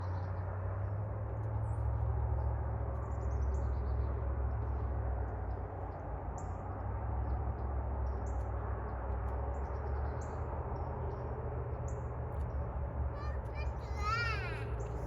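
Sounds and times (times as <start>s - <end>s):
birds chirping: 12.4s - 15.0s.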